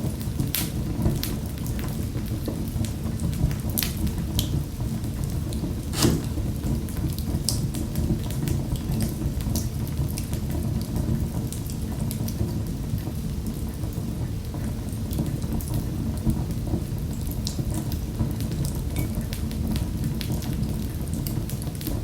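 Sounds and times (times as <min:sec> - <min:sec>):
fire pops and snaps: 0:05.9 - 0:06.4.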